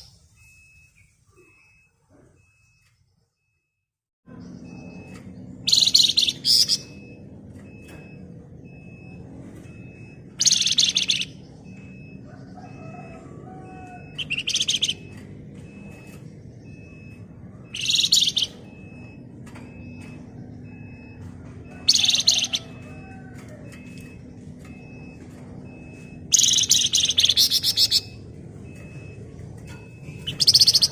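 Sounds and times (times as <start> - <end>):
songbird chattering trills: 5.6 - 7.0, 10.4 - 11.6, 14.1 - 15.0, 17.7 - 18.7, 21.8 - 22.8, 26.3 - 28.2, 30.2 - 30.9.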